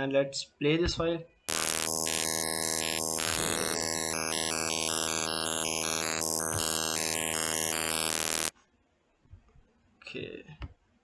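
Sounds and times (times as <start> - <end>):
bursts of high hiss: 1.5 - 8.5
drone of stacked tones: 1.5 - 8.5.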